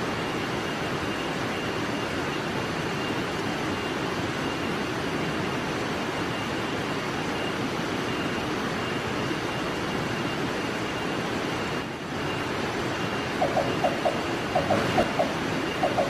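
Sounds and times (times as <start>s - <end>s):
steady hissing background: 0.0s - 16.0s
bird calling hollow notes: 13.4s - 16.0s.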